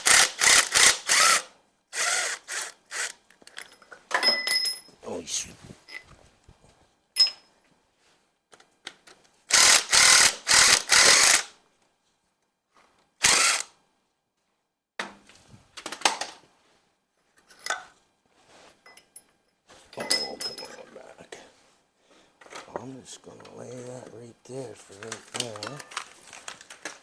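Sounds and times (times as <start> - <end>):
tools clinking: 3.5 - 4.9, 7.2 - 7.5, 19.9 - 20.8
ratchet wrench clicking: 9.5 - 11.5.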